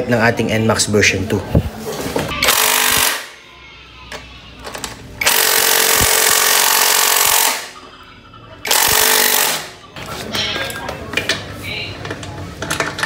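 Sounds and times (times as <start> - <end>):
power tool running: 5.2 - 7.7, 8.6 - 9.8.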